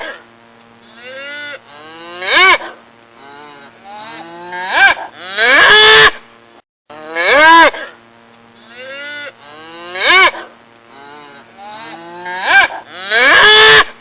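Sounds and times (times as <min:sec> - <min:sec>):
cattle mooing: 0:00.9 - 0:06.0, 0:08.6 - 0:13.9.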